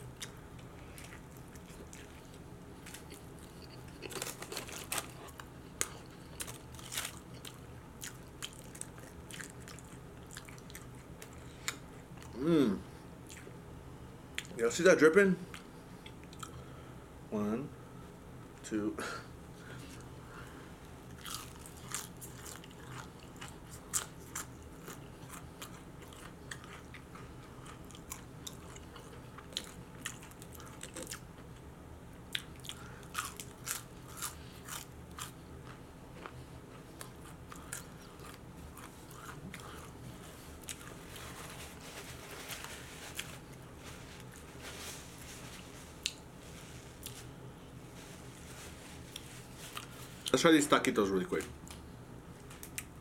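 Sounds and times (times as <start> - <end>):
crunching fried onion rings: 0.2 - 12.4, 21.1 - 31.5, 32.3 - 47.3.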